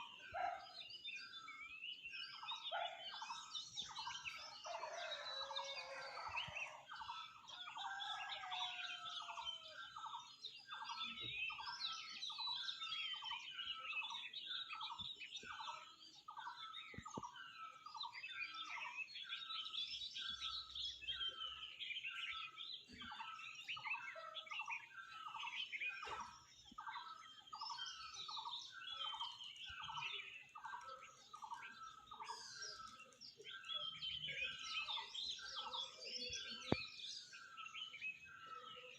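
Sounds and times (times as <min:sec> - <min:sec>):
birds chirping and twittering: 0:00.0 - 0:38.9.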